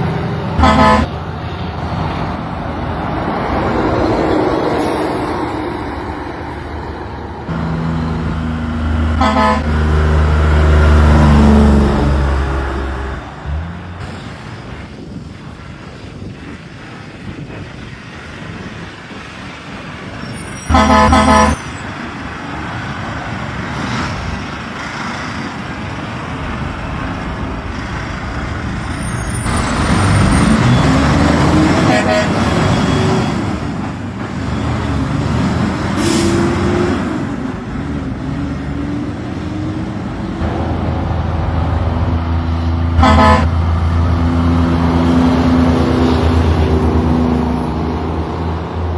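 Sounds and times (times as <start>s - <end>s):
truck engine under load: 0.0s - 48.9s
truck horn blast: 0.6s - 1.2s, 9.1s - 13.6s, 20.7s - 21.8s, 29.8s - 33.2s, 42.9s - 43.9s.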